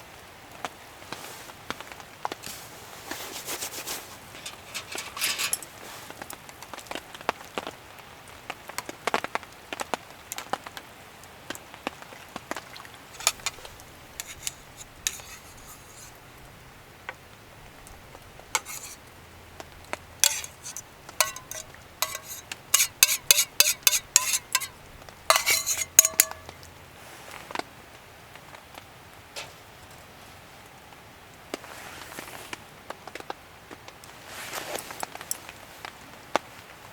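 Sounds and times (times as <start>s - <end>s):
metal utensils clinking on cookware: 4.1s - 6.4s, 13.2s - 16.2s, 18.6s - 19.0s, 20.2s - 26.7s.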